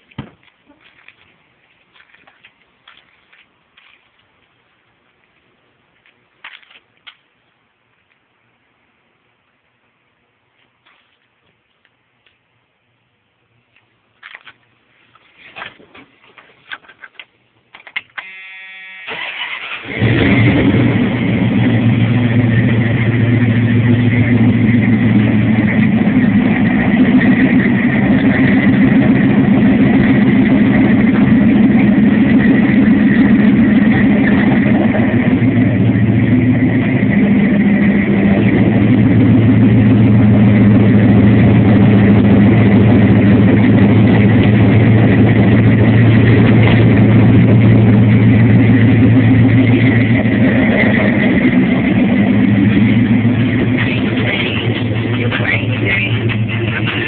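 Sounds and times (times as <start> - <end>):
engine cranking whine: 18.2 - 57.0
truck engine idling: 19.1 - 57.0.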